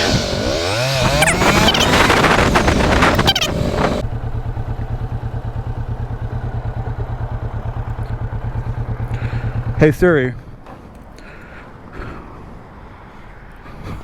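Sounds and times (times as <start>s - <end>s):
loud rushing noise: 0.0s - 4.2s
motorcycle engine idling: 0.0s - 11.8s.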